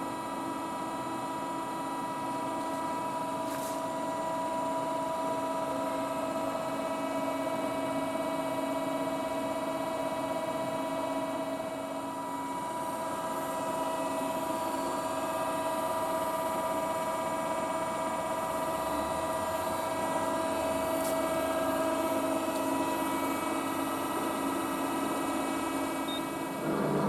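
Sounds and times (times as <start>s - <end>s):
hydraulic press brake humming: 26.1s - 27.0s.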